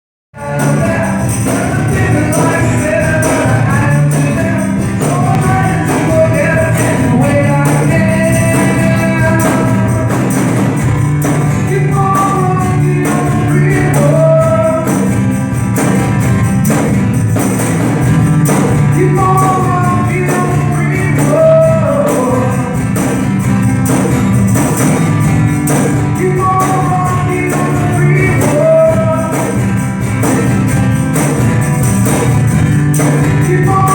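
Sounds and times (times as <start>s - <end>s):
person singing: 0.4s - 10.6s, 11.2s - 15.4s, 18.5s - 23.3s, 25.7s - 29.9s, 33.0s - 33.9s
percussion beat with bass: 0.4s - 33.9s.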